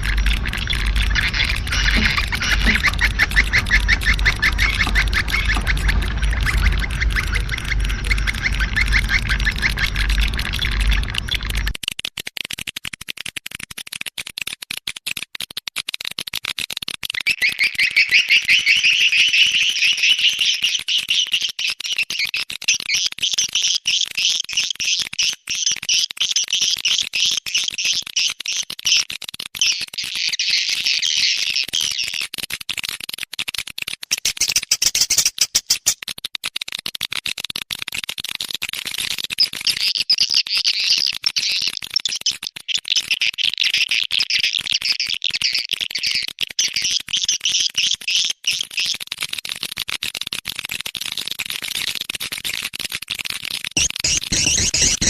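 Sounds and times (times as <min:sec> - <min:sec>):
swiftlets twittering: 0:00.0 - 0:11.8, 0:53.8 - 0:55.0
rapid sharp clicks: 0:00.0 - 0:17.2, 0:48.9 - 0:55.0.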